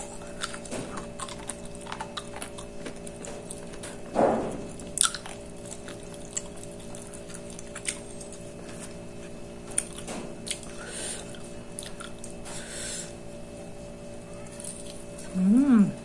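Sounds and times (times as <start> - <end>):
person chewing food: 0.0 - 12.4
low background hum: 0.0 - 16.0.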